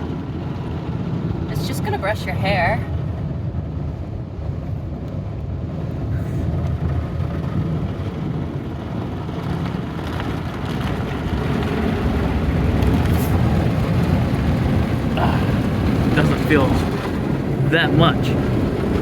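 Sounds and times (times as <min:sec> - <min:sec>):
car wash brushes and water: 0:06.4 - 0:19.0.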